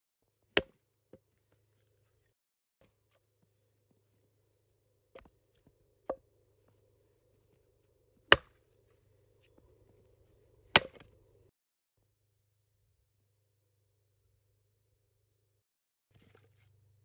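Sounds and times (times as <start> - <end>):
sharp chopping strikes: 8.2 - 8.6, 10.7 - 11.2.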